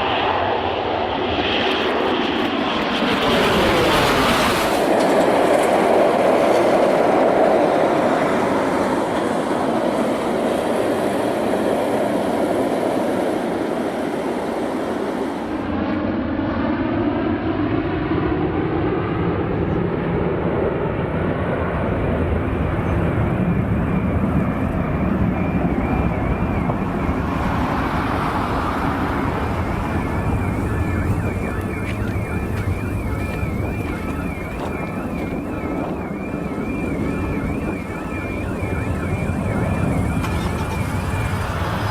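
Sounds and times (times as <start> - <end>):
jet engines roaring: 0.0 - 41.9
warbling alarm tone: 22.5 - 41.9.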